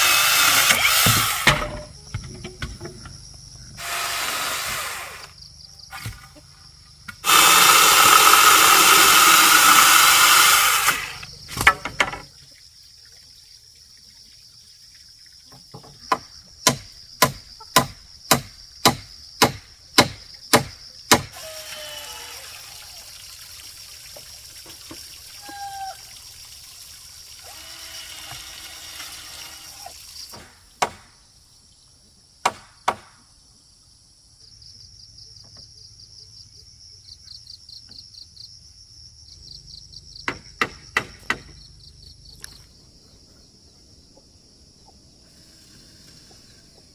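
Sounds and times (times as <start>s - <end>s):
insects droning: 0.0s - 46.9s
sharp knocks: 15.7s - 21.4s, 30.3s - 31.2s, 32.4s - 33.2s, 40.2s - 41.6s.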